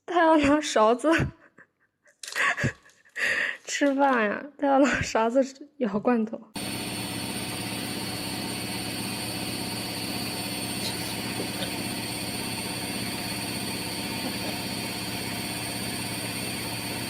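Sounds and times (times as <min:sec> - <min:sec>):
steady motor hum: 0:06.6 - 0:17.0.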